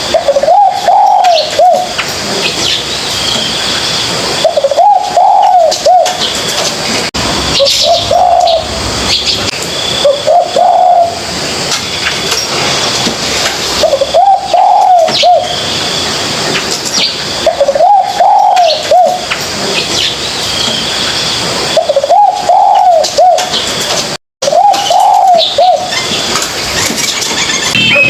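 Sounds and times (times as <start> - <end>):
dove cooing: 0.0 - 2.0, 4.4 - 6.3, 7.6 - 9.3, 10.0 - 11.2, 13.8 - 15.5, 17.4 - 19.3, 21.8 - 23.6, 24.4 - 26.2.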